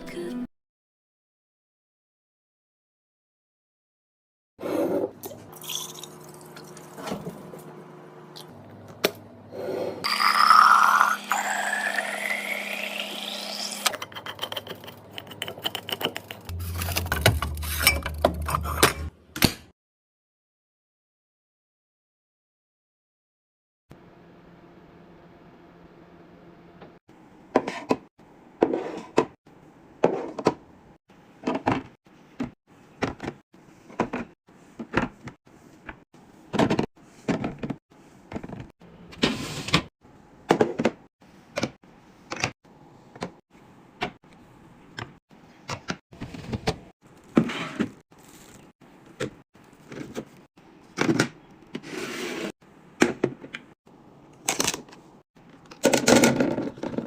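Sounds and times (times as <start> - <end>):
items knocking and clacking: 55.7 - 57.0.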